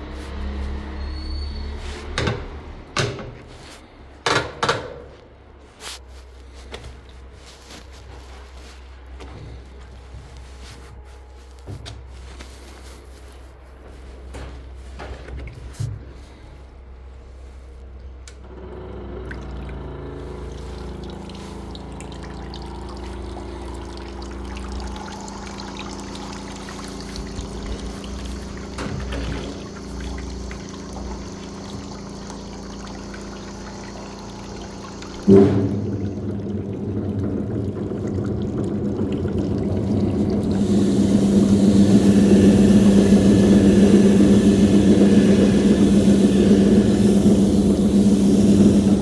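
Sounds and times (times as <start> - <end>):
washing machine humming: 0.0 - 49.0
water pouring and splashing: 5.8 - 10.8, 19.3 - 49.0
sharp knocks and thumps: 35.2 - 36.8.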